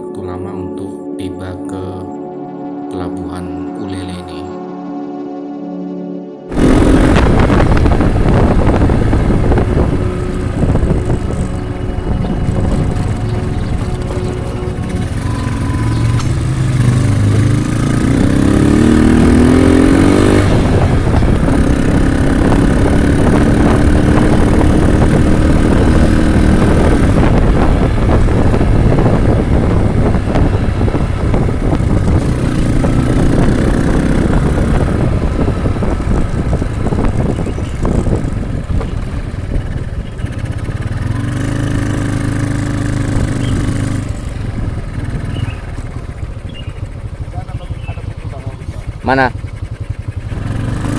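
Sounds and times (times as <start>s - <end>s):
motorcycle engine accelerating: 4.7s - 50.9s
wind noise: 6.5s - 47.0s.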